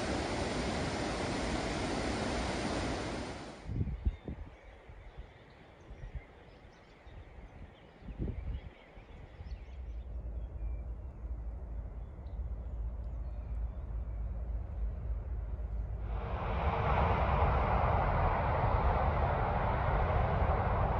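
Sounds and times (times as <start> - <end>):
low rumble: 10.1 - 20.9.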